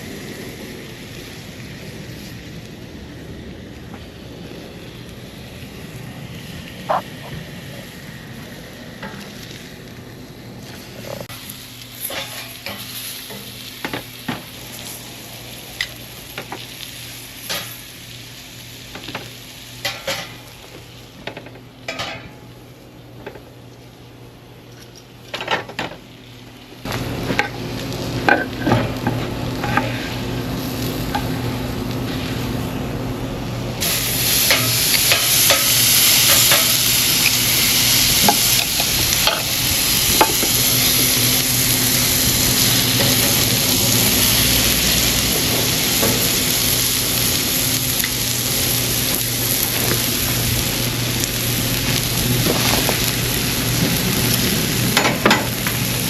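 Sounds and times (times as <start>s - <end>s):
food sizzling on a grill: 0.0s - 56.0s
metal utensils clicking and scraping: 12.0s - 12.9s.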